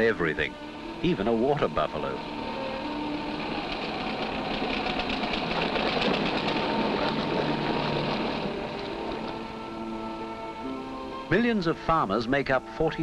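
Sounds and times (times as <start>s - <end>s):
small engine clattering: 1.1s - 10.6s.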